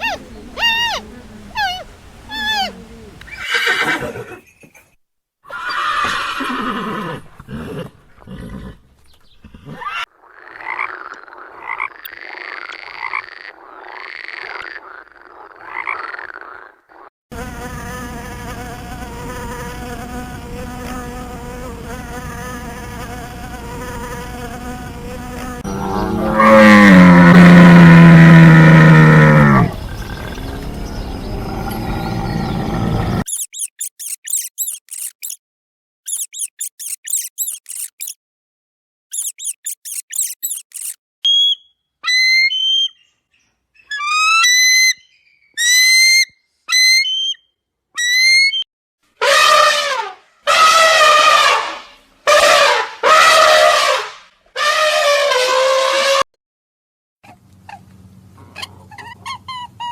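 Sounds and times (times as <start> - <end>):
rising and falling animal calls: 0.0 - 4.4, 25.6 - 35.4, 36.1 - 38.2, 39.1 - 41.0
insect-like buzz: 16.5 - 26.4, 33.2 - 35.4, 36.1 - 38.2, 39.1 - 41.0
short animal calls: 33.3 - 35.4, 36.1 - 38.2, 39.1 - 41.0.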